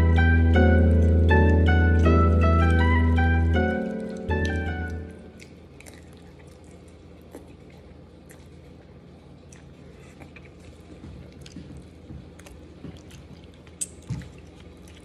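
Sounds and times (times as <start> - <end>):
person chewing pasta: 0.0 - 15.0
wet mouth clicks: 12.4 - 15.0.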